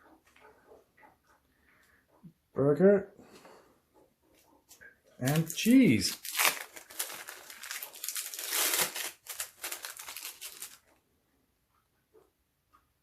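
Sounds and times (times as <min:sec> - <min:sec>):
plastic wrapping crinkling: 0:05.2 - 0:11.0.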